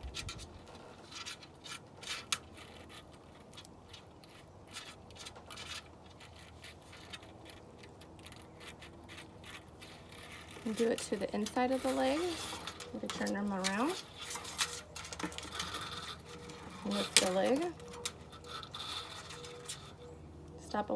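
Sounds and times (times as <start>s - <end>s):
comb scratching through dog fur: 6.1s - 20.0s.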